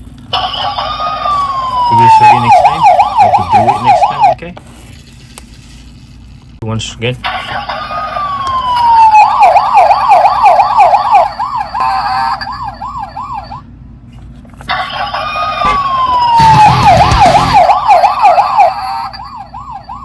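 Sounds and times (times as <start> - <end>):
toy police siren yelping: 0.4 - 4.4, 7.3 - 13.6, 14.7 - 20.0.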